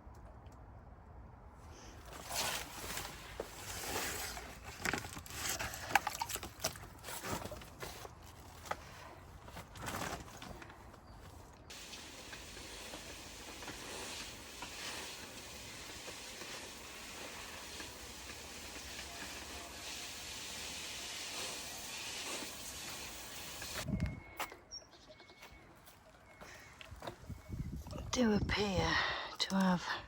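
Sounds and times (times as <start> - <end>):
outdoor hiss of wind: 6.9 - 24.2.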